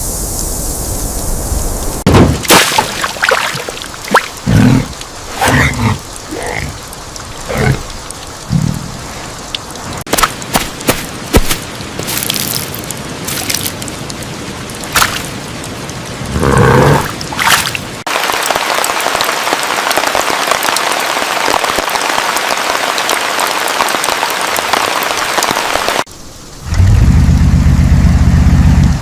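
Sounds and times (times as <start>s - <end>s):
rain falling: 0.0s - 29.0s
sharp cracks: 2.1s - 5.5s, 10.0s - 14.0s.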